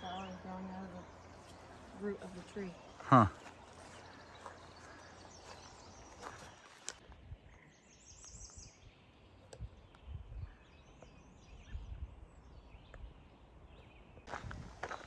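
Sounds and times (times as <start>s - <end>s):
footsteps on dirt trail: 0.0s - 7.2s, 14.2s - 15.0s
songbird singing faintly: 0.0s - 15.0s.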